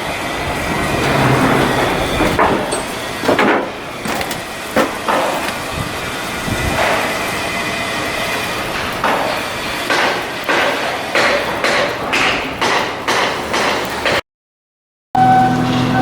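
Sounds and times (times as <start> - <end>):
steady mechanical din: 0.2 - 7.2
metal clanks and knocks: 0.4 - 5.6.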